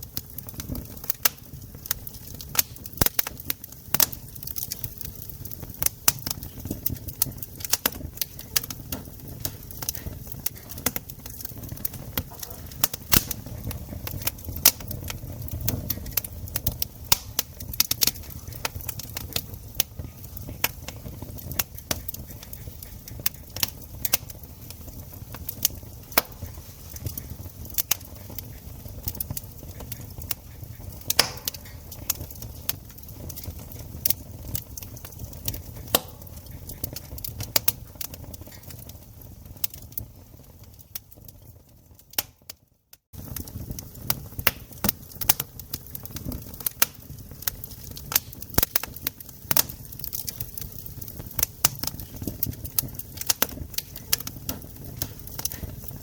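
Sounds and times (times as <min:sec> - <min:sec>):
campfire crackling and popping: 0:00.0 - 0:56.0
low rumble of flames: 0:00.0 - 0:56.0.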